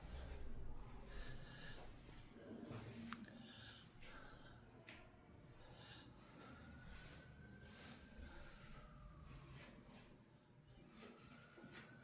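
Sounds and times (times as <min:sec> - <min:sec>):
distant emergency siren wailing: 0:05.3 - 0:12.0.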